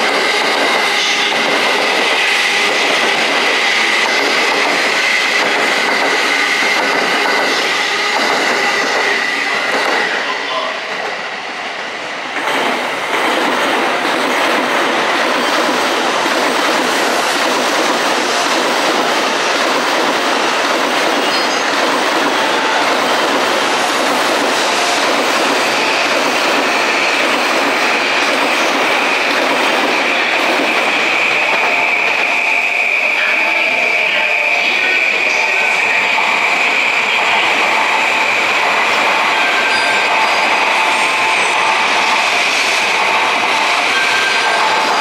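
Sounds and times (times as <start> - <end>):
train rolling with wheel clatter: 0.0 - 11.2, 12.2 - 45.0
high squeal of wheels on rails: 0.0 - 11.3, 20.3 - 45.0.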